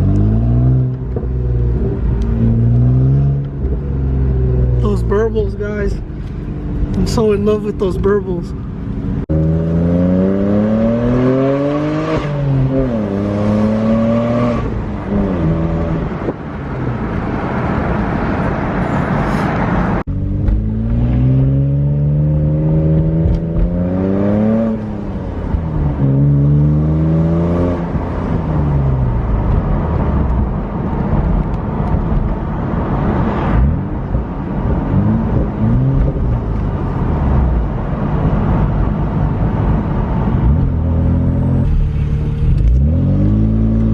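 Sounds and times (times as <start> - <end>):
car engine accelerating hard: 9.0 - 43.9.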